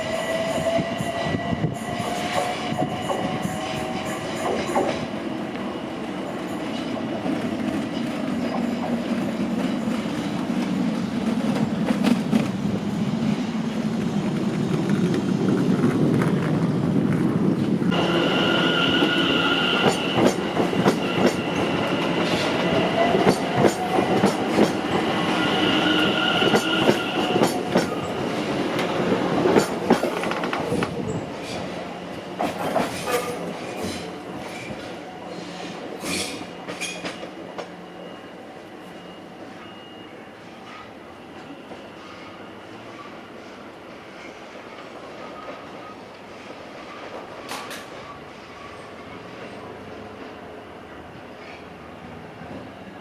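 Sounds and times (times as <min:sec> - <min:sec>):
train rumbling past: 0:00.0 - 0:39.2.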